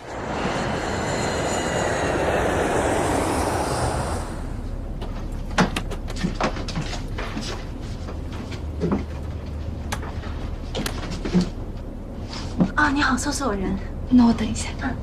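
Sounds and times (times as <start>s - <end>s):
jet airliner rushing: 0.0s - 5.2s.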